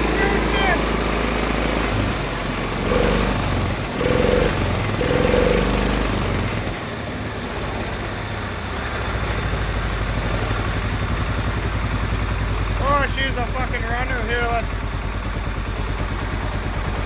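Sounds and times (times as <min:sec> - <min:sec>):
single-cylinder engine running: 0:00.0 - 0:17.0.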